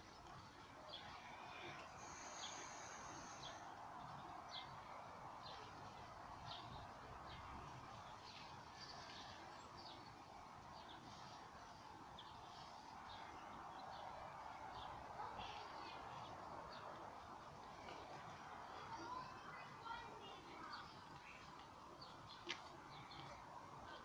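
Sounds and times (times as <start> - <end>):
low steady hiss: 0.0 - 24.0.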